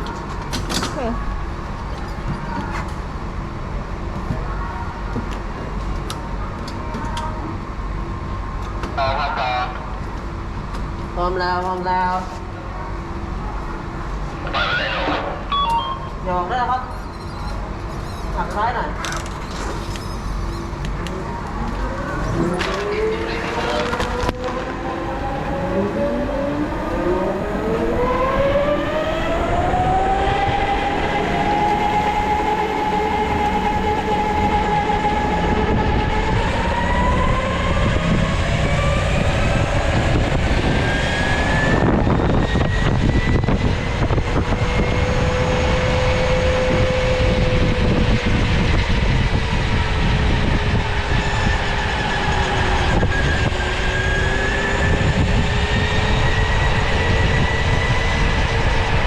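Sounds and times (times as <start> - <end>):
steady low rumble: 17.6 - 40.8.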